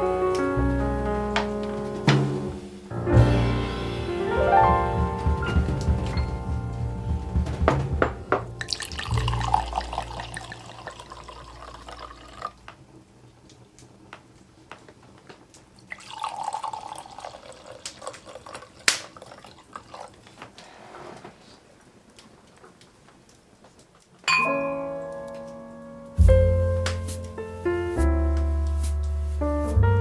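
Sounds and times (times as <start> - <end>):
music: 0.0 - 10.5, 24.3 - 30.0
water running: 3.4 - 12.6
water dripping: 5.7 - 12.6
kitchen items knocking and clicking: 7.2 - 9.5.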